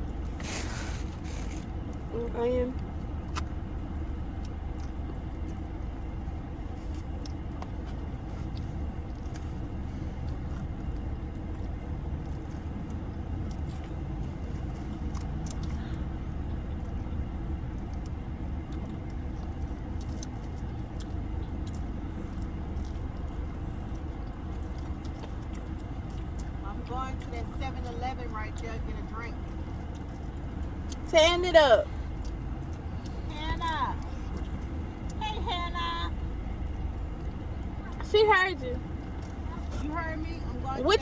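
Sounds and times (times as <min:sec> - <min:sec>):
car engine and road rumble: 0:00.0 - 0:41.0.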